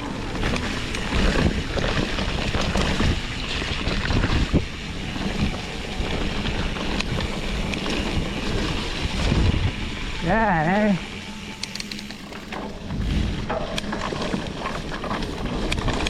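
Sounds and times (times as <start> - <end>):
bike rattles and knocks: 0.0 - 16.0
mountain bike rolling on rough trail: 0.0 - 16.0
wind buffeting microphone: 0.0 - 16.0.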